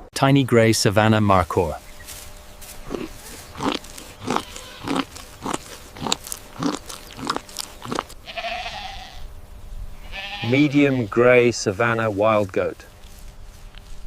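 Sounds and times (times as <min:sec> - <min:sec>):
goat chewing crunchily: 0:02.0 - 0:08.6.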